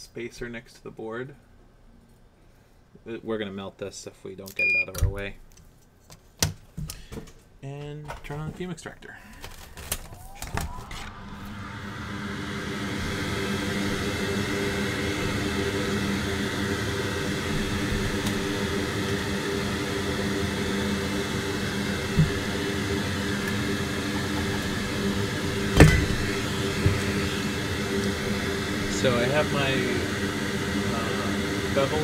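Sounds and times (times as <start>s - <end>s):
extractor fan whirring: 9.2s - 32.0s.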